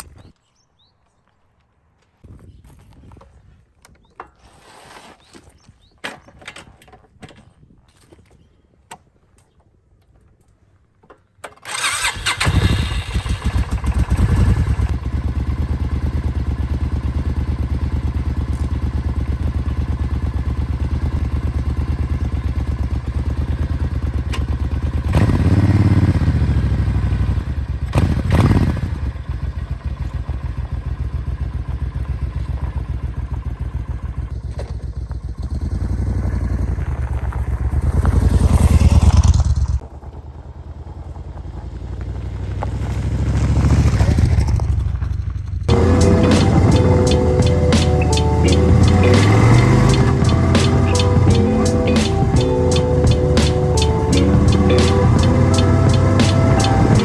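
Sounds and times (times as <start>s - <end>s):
motorcycle engine starting and idling: 11.0s - 57.0s
motorcycle throttle blips: 43.9s - 57.0s.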